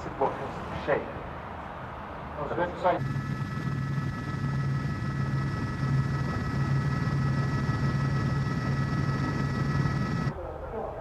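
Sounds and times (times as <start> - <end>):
high whining tones: 3.0 - 10.3
low pulsing mechanical hum: 3.0 - 10.4.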